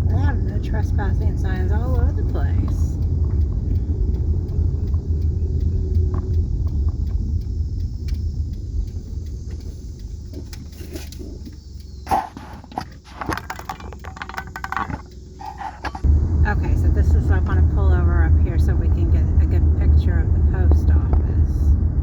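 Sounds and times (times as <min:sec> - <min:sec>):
car road and engine rumble: 0:00.0 - 0:22.0
clicks and knocks: 0:12.1 - 0:16.1.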